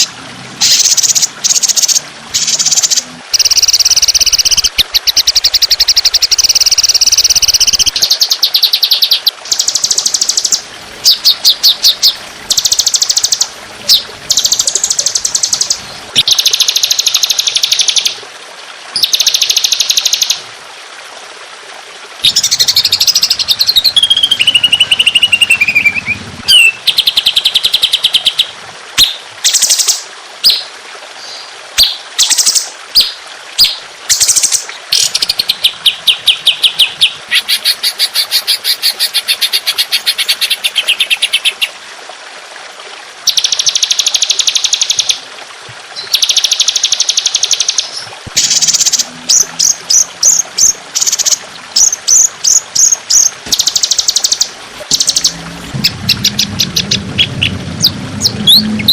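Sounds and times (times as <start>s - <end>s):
songbird buzzy trills and calls: 0.0s - 18.2s, 18.9s - 20.4s, 22.2s - 41.8s, 43.2s - 45.3s, 46.0s - 58.9s.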